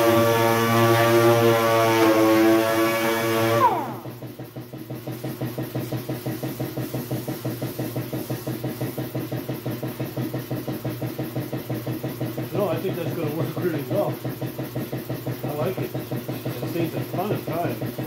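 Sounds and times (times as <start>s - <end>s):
sander whining and spinning down: 0.0s - 8.8s
motor chugging: 0.0s - 18.0s.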